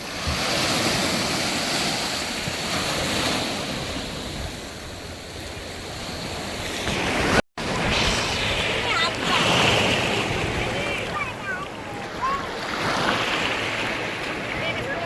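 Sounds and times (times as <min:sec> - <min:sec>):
sea waves breaking on beach: 0:00.0 - 0:15.0.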